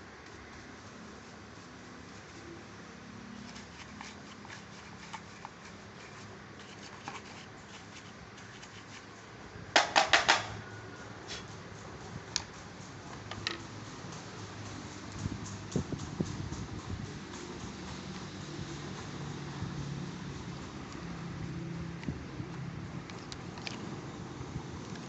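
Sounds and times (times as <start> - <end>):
tools clicking and knocking: 9.8 - 10.6, 12.3 - 14.2.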